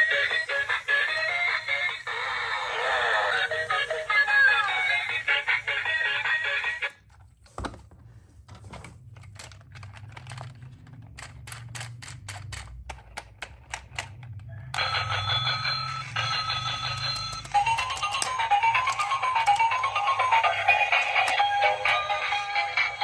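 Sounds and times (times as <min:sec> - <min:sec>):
music: 0:00.0 - 0:07.0, 0:14.8 - 0:23.0.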